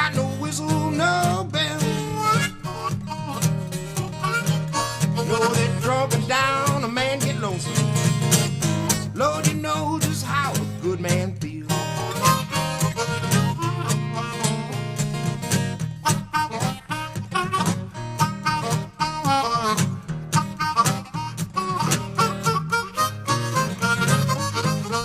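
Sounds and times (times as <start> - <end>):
bending lead guitar line: 0.0 - 25.0
picked acoustic guitar: 0.0 - 25.0.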